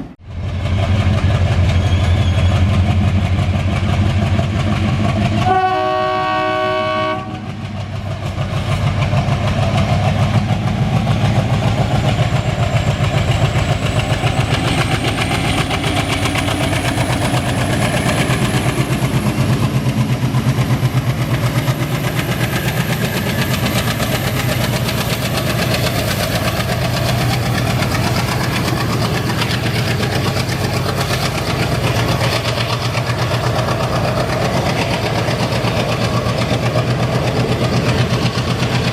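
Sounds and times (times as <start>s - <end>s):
diesel engine chugging: 0.3s - 38.9s
locomotive horn: 5.4s - 7.6s.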